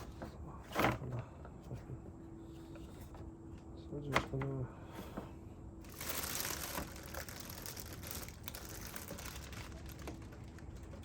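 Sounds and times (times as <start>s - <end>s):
oil filter rustling and crinkling: 5.8s - 11.0s.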